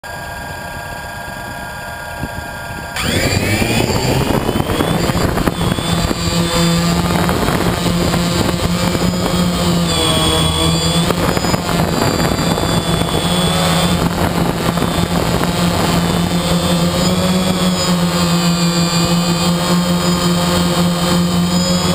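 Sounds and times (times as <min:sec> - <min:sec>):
quadcopter motors whining: 0:00.1 - 0:21.9.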